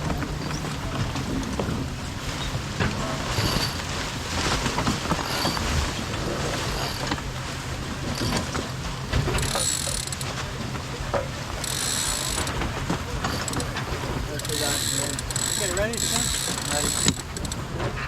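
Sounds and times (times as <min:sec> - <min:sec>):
winch ratcheting: 0:00.0 - 0:18.0
wind and water rushing: 0:00.0 - 0:18.0.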